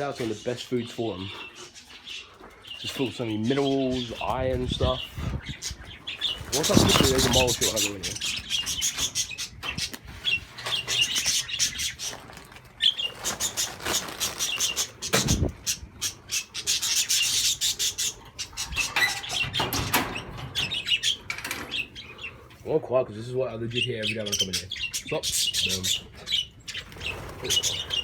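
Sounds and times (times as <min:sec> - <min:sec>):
budgerigars chattering and chirping: 0:00.0 - 0:28.0
wing flutters: 0:06.1 - 0:08.2.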